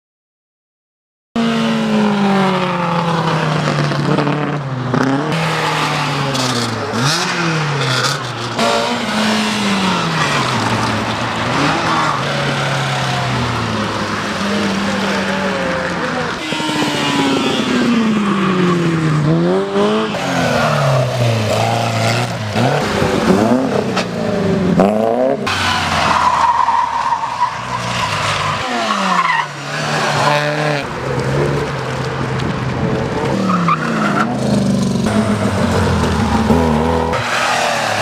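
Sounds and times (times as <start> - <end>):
car engines revving: 1.4 - 38.0
tire squeal: 25.4 - 30.9, 33.3 - 34.4, 37.0 - 38.0.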